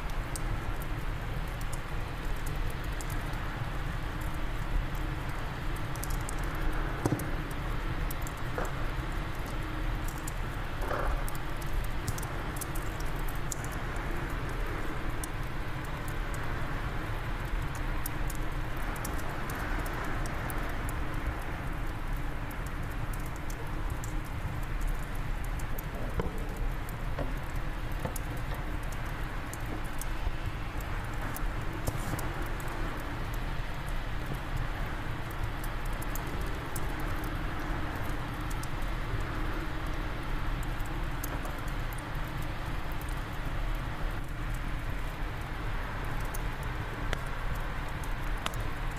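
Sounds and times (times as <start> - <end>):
fireplace fire crackling: 0.0 - 48.9.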